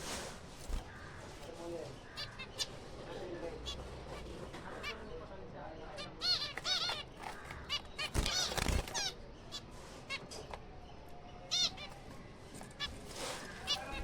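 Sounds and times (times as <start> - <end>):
finches honking calls: 0.7 - 10.3, 11.5 - 12.2.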